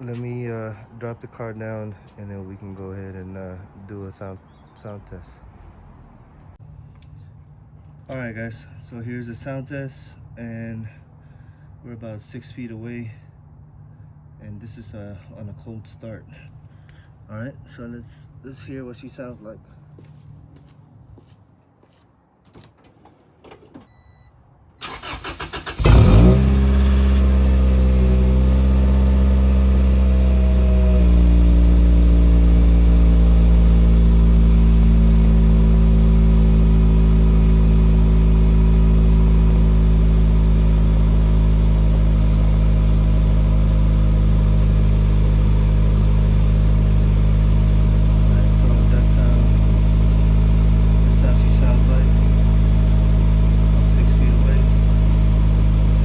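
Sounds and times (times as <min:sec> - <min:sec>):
car starter cranking: 0:24.8 - 0:28.3
car engine idling: 0:24.8 - 0:56.0.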